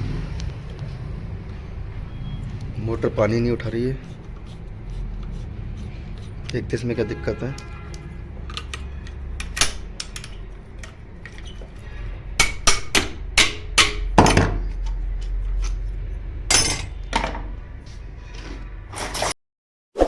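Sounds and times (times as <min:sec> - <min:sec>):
low steady hum: 0:00.0 - 0:18.9
hand tools knocking on metal: 0:12.4 - 0:14.7, 0:16.5 - 0:17.4.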